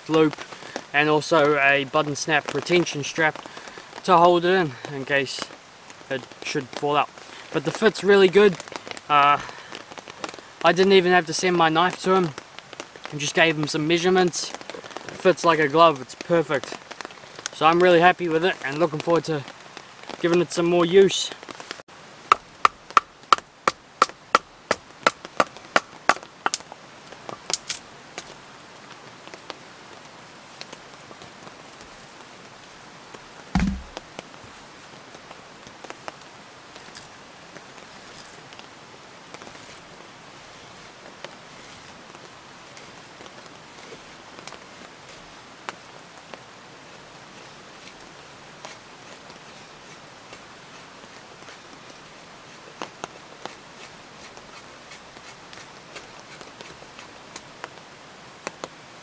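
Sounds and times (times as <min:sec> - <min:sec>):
rain hiss: 0:00.0 - 0:59.0
twigs snapping: 0:27.4 - 0:28.3
heavy knock: 0:33.6 - 0:34.0.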